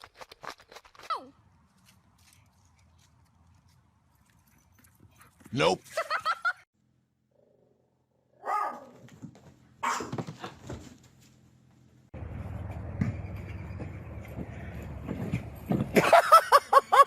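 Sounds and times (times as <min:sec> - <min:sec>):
knocks and scuffling: 0:08.9 - 0:16.4.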